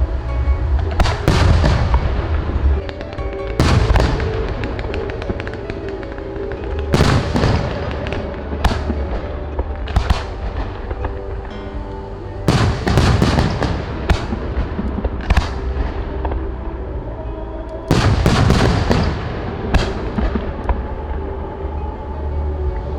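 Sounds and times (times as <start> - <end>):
music with sustained tones: 0.0 - 22.9
fireworks crackling: 0.8 - 11.6, 12.4 - 16.6
fireworks bangs: 0.9 - 11.3, 12.5 - 16.4, 17.9 - 20.8.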